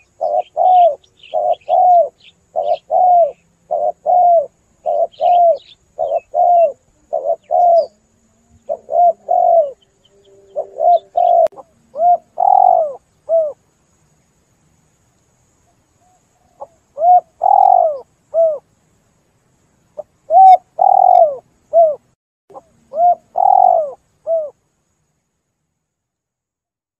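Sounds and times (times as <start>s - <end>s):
dove cooing: 0.0s - 13.6s, 16.0s - 18.6s, 20.0s - 24.6s.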